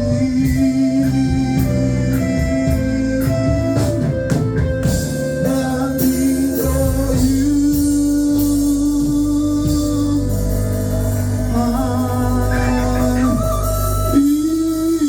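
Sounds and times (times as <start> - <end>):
worship band playing: 0.0 - 15.0
singing: 5.4 - 15.0.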